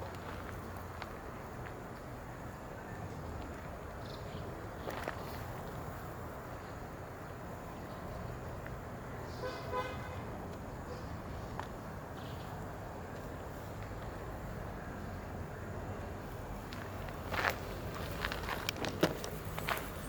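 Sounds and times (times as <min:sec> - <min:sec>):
outdoor background noise: 0:00.0 - 0:20.0
short horn toot: 0:09.4 - 0:10.2.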